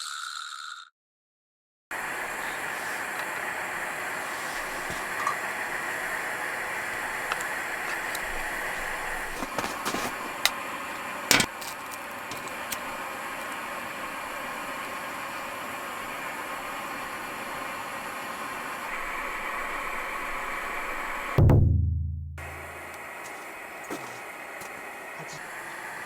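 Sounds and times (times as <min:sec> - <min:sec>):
camp stove hissing: 0:01.9 - 0:21.4, 0:22.4 - 0:26.0
loud knock: 0:21.4 - 0:22.5.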